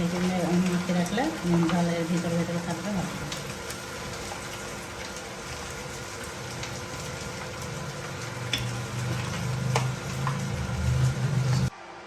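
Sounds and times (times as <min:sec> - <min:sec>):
food sizzling in a frying pan: 0:00.0 - 0:11.7
low hum: 0:06.4 - 0:11.7.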